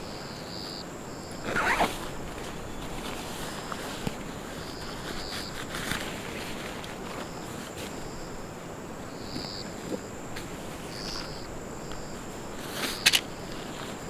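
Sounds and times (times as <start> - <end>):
insects buzzing: 0.0 - 14.0
insects chirping: 0.0 - 14.0
sharp clicks: 13.0 - 13.3.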